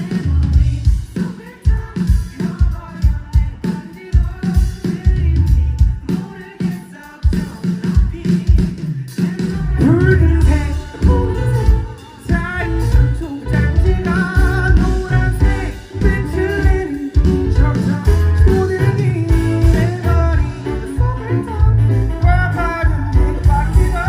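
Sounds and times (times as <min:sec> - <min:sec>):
bass: 0:00.0 - 0:01.1, 0:05.1 - 0:06.1, 0:09.4 - 0:24.0
drums: 0:00.0 - 0:24.0
singer's voice: 0:00.0 - 0:24.0.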